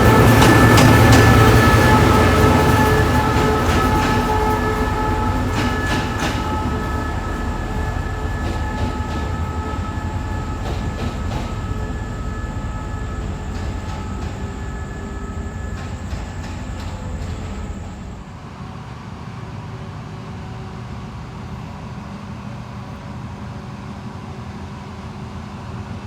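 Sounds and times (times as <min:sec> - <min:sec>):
wheels clicking over rail joints: 0:00.0 - 0:18.2
diesel train rumbling and whining: 0:00.0 - 0:26.0.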